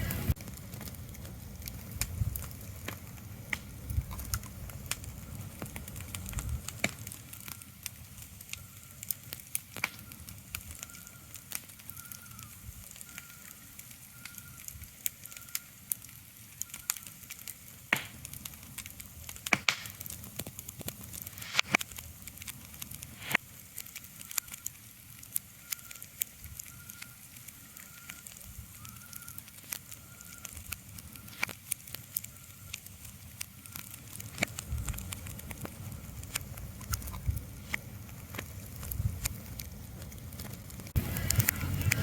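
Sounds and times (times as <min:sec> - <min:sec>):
crackling with sharp pops: 0:00.0 - 0:42.0
low rumble: 0:38.9 - 0:42.0.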